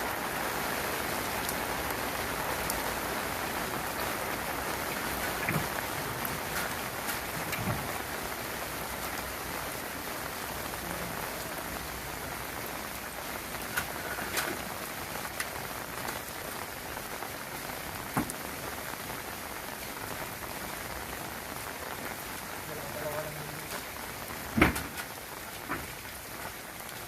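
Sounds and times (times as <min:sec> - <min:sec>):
rain on hard surfaces: 0:00.0 - 0:27.0.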